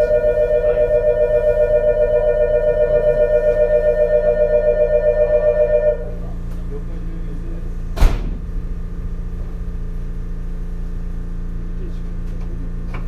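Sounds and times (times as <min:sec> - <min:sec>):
electronic warning bell: 0:00.0 - 0:06.3
railcar hum: 0:00.0 - 0:07.9
sharp thump: 0:08.0 - 0:08.5.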